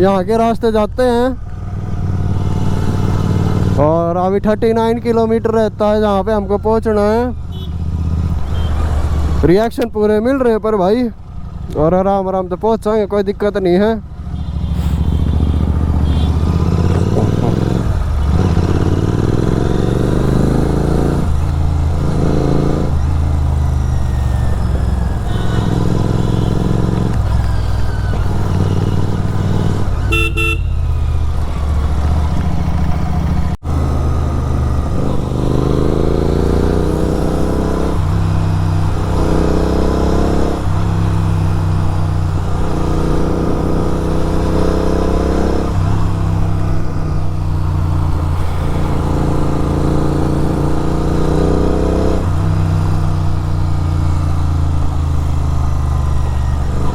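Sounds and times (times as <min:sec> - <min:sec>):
motorcycle engine accelerating: 0:00.0 - 0:09.8, 0:10.5 - 0:56.9
short horn toot: 0:14.4 - 0:17.5, 0:25.2 - 0:26.8, 0:30.0 - 0:31.0.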